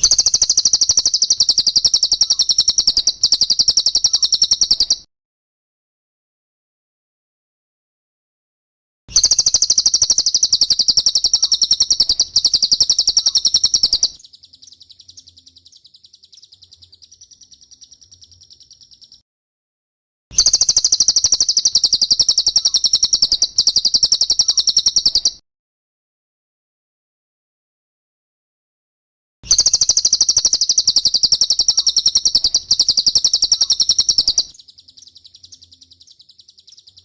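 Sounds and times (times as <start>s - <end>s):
bird singing rapid trill: 0.0s - 5.1s, 9.1s - 19.2s, 20.4s - 25.4s, 29.5s - 37.0s.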